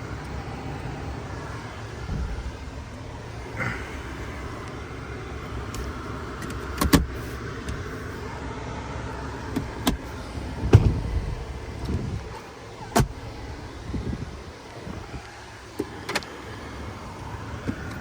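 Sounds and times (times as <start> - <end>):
vehicle rumble: 0.0 - 18.0
sharp clicks and knocks: 5.7 - 7.8.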